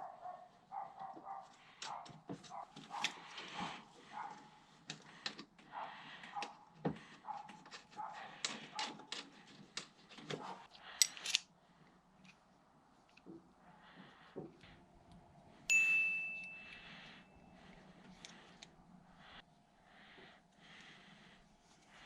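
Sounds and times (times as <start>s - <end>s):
tools and metal parts clinking: 10.9s - 11.5s.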